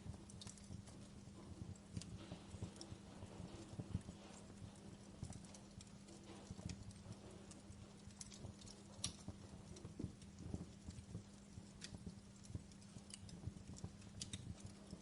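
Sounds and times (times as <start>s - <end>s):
faint steady hum: 0.0s - 15.0s
wood fire crackling and popping: 0.0s - 15.0s.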